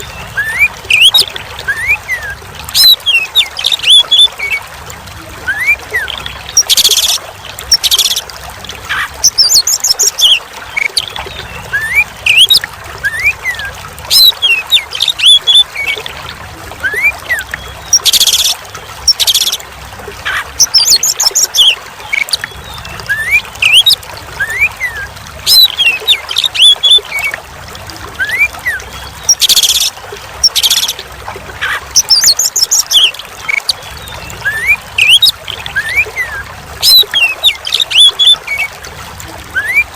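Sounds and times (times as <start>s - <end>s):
songbird whistling and chattering: 0.0s - 4.3s, 8.9s - 16.0s, 20.3s - 27.3s, 31.6s - 38.7s, 39.5s - 39.9s
trickling water: 0.0s - 39.9s.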